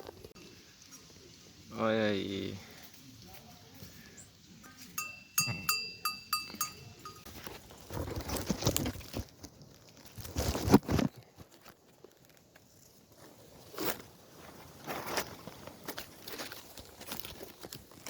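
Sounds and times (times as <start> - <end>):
quick metallic clinking: 5.0 - 7.3.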